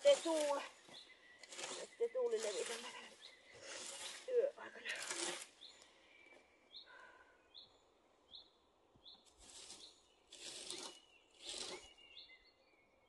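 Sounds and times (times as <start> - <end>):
scraping rustling noises: 0.0 - 5.8, 9.2 - 12.2.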